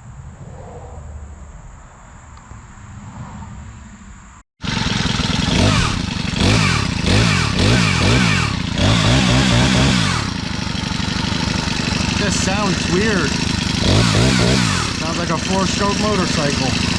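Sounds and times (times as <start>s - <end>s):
chainsaw engine revving: 4.6s - 16.9s.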